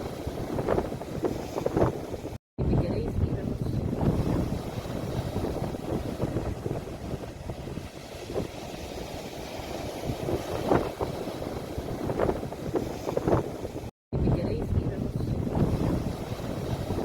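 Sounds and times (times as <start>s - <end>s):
sea waves: 0.0s - 17.0s
wind buffeting microphone: 0.0s - 17.0s.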